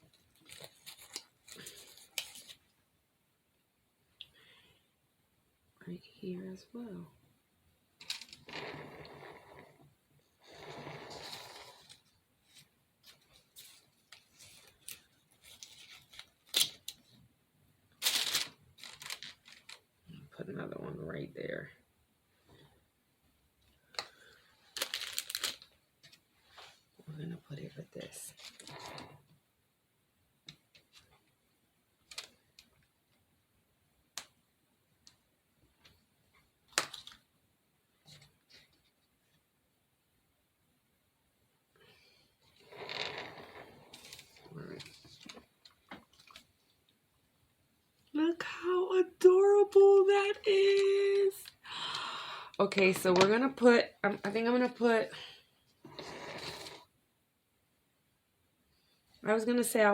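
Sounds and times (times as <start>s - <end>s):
crinkly rustle: 0.1s - 2.7s, 11.8s - 17.1s, 18.0s - 19.8s, 24.6s - 26.8s, 42.6s - 46.8s
soft rustle: 8.8s - 17.2s, 18.0s - 19.8s.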